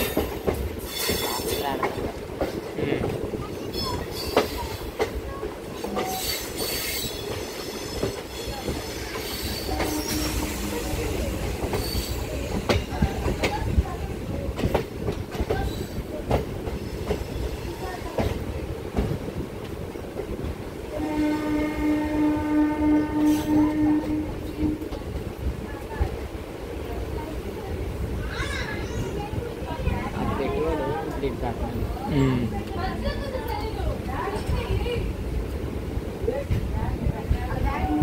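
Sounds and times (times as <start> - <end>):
train horn: 9.6 - 11.0, 20.9 - 25.0, 37.8 - 38.0.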